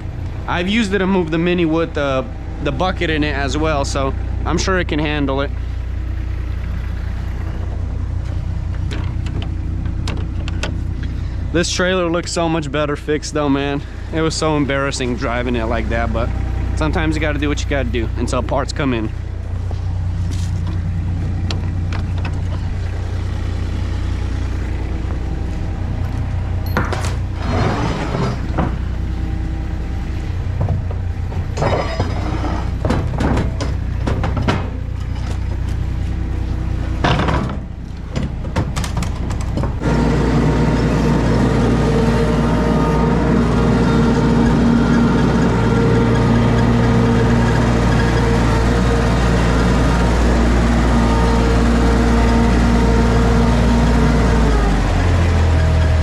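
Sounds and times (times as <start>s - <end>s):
skid steer engine running: 0.0s - 56.0s
machine clunking on ramps: 26.6s - 29.0s, 30.5s - 35.8s, 37.0s - 52.5s.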